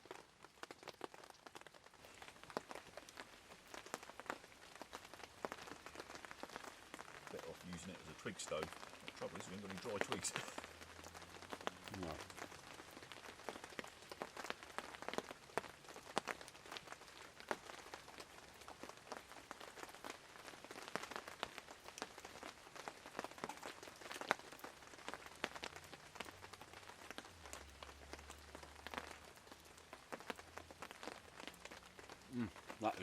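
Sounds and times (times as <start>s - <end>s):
raindrops tapping on surfaces: 0.0s - 33.0s
steady rain falling: 0.0s - 33.0s.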